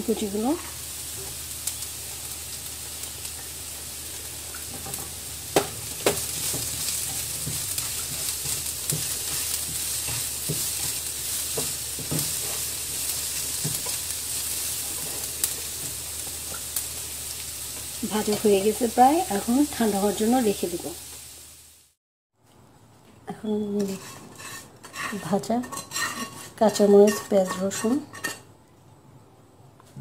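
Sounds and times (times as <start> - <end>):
vegetables sizzling in oil: 0.0 - 22.0
spatula scraping a pan: 6.0 - 16.0, 23.8 - 28.5.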